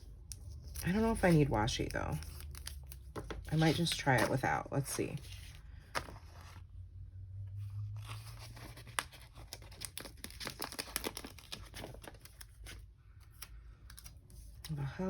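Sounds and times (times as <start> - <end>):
paper crinkling: 0.3 - 4.4, 8.0 - 14.7.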